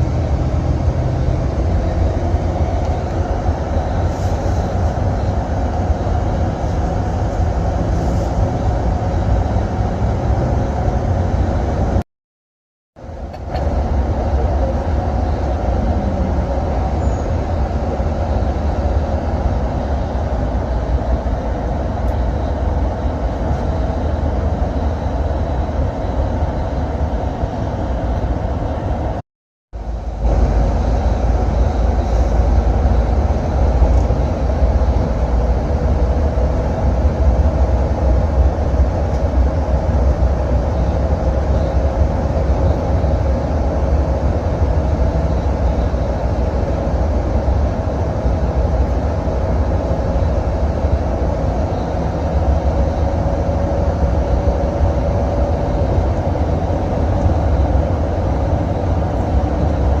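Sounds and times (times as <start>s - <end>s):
bus engine and road rumble: 0.0s - 12.0s, 13.0s - 29.2s, 29.8s - 60.0s
faint whine: 13.0s - 29.2s, 29.8s - 60.0s.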